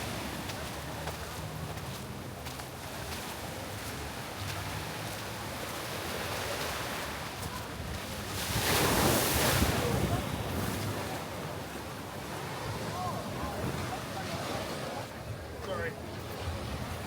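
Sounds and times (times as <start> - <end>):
ocean surf washing ashore: 8.3 - 17.0.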